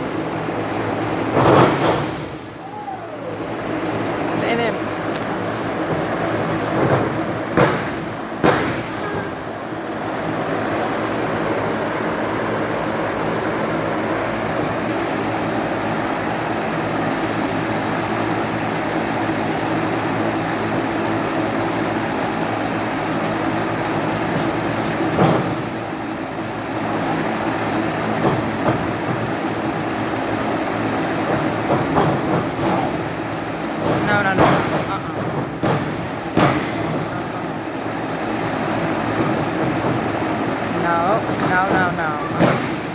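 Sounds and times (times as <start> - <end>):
rumbling hall noise: 0.0 - 42.9
wrestlers thudding on the ring: 0.6 - 4.8, 5.8 - 9.6, 31.1 - 37.5, 39.1 - 42.9.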